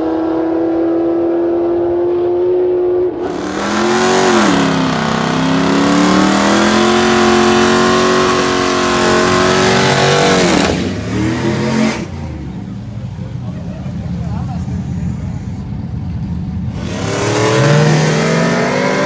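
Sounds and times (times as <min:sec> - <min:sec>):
truck engine at full throttle: 0:03.0 - 0:19.0.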